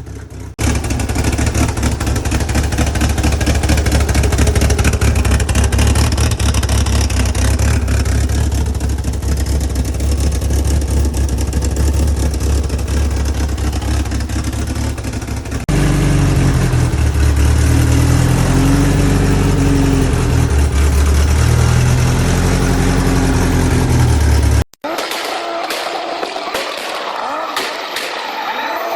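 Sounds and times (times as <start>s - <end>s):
car engine running and revving: 0.0s - 24.7s.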